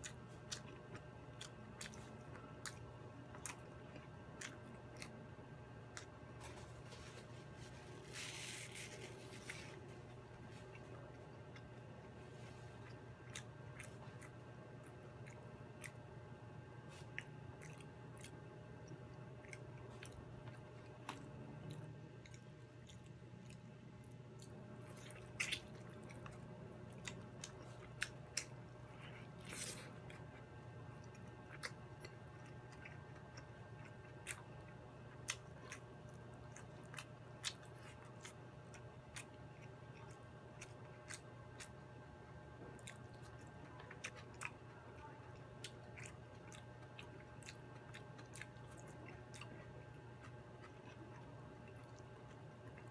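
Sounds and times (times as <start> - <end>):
person chewing food: 0.0 - 52.9.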